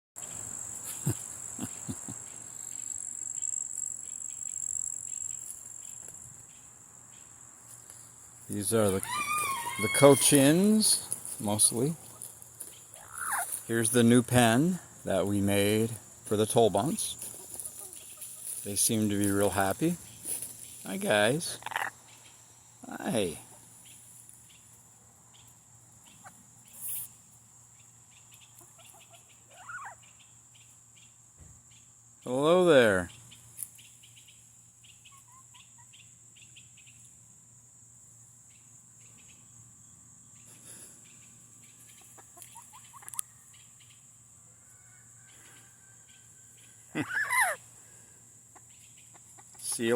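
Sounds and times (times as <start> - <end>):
insects trilling: 0.2 - 49.9
hissing rustle: 16.8 - 21.6, 26.7 - 27.3
chickens clucking softly: 28.2 - 30.8, 34.9 - 36.1, 40.5 - 44.0, 48.5 - 49.9.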